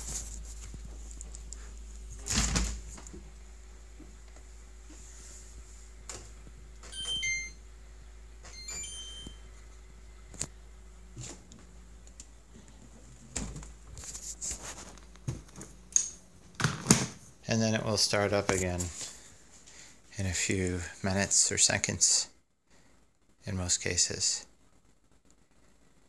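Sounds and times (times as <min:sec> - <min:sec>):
refrigerator humming: 0:00.0 - 0:22.2
short high beeps: 0:06.9 - 0:07.6, 0:08.5 - 0:09.4.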